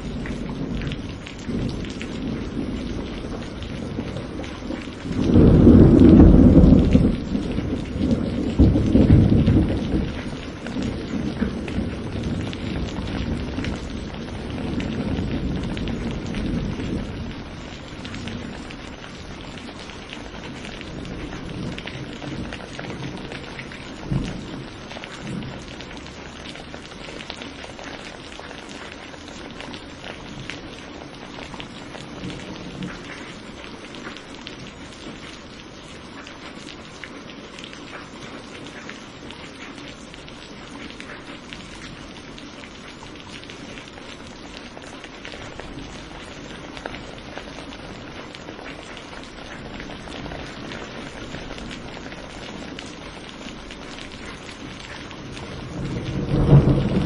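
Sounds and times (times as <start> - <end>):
thunder rumbling: 0.0 - 26.9, 40.2 - 57.0
rain pattering: 0.0 - 57.0.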